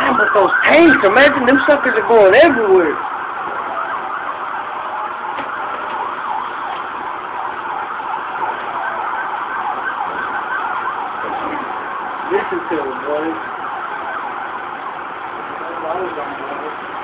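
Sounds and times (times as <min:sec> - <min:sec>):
emergency vehicle sirens wailing: 0:00.0 - 0:17.0.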